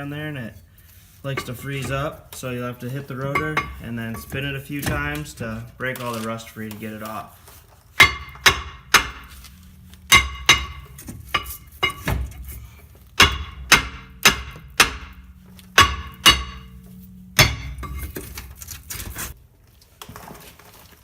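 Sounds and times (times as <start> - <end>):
hammer striking metal rotor: 1.3 - 5.4, 8.0 - 19.4.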